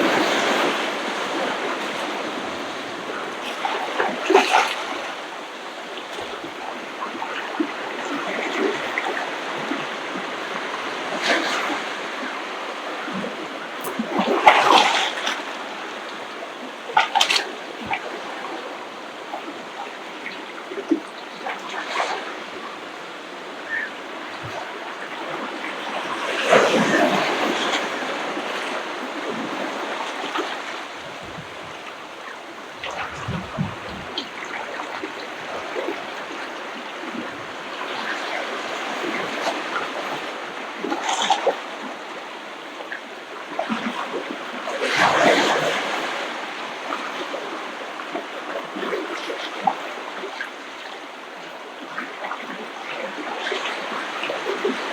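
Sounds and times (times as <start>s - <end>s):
ocean waves breaking: 0.0s - 54.9s.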